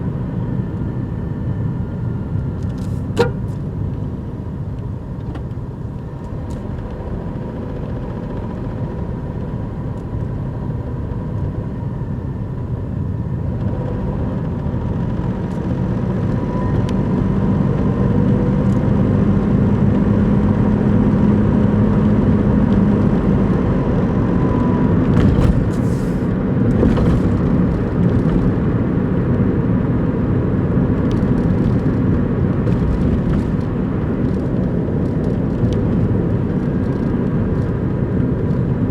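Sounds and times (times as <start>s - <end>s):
car engine running: 0.0s - 17.2s, 18.0s - 38.9s.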